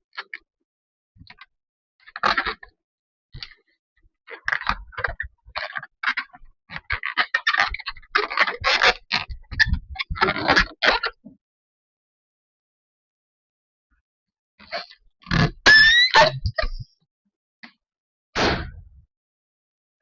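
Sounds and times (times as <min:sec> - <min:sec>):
rubber balloon rubbing: 0:15.3 - 0:16.8.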